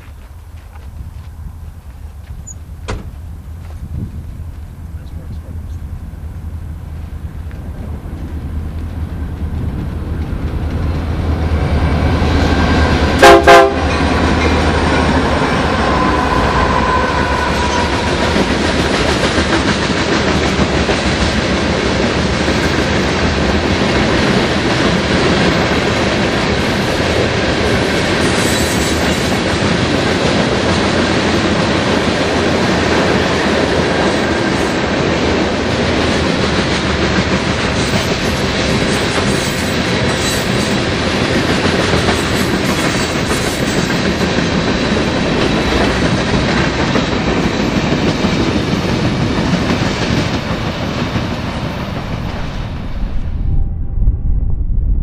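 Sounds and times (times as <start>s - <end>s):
locomotive engine rumble: 0.0s - 20.8s
freight cars clickety-clack: 6.9s - 52.8s
short loud train horn toots: 13.2s - 14.6s, 15.4s - 18.4s.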